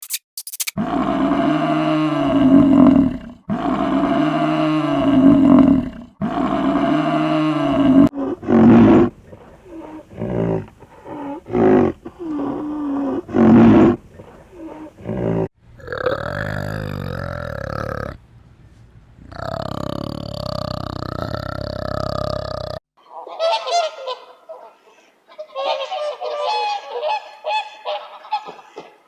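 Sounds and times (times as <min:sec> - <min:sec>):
big cat roaring: 0:00.8 - 0:18.2, 0:19.2 - 0:22.8.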